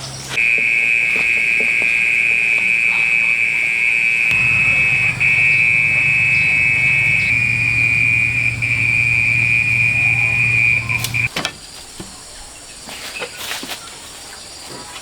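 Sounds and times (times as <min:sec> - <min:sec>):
insects buzzing: 0:04.1 - 0:11.3.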